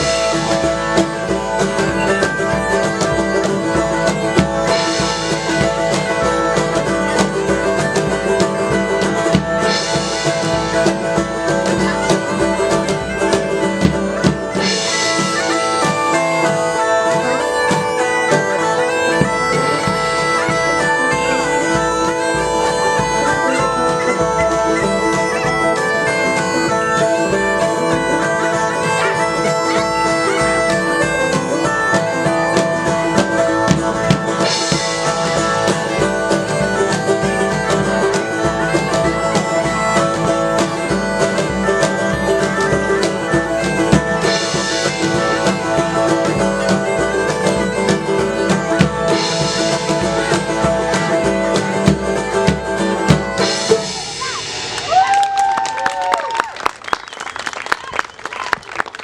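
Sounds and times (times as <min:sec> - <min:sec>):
bagpipes with drones: 0:00.0 - 0:55.1
drum beat: 0:00.0 - 0:56.1.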